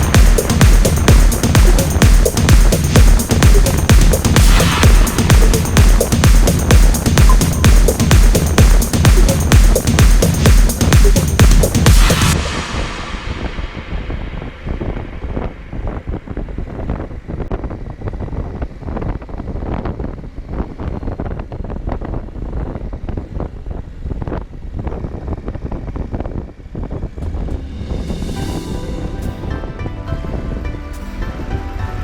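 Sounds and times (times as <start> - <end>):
motorcycle engine: 0.0 - 17.4, 26.3 - 31.8
road noise: 0.0 - 18.7, 22.4 - 32.0
wind buffeting microphone: 0.0 - 31.8.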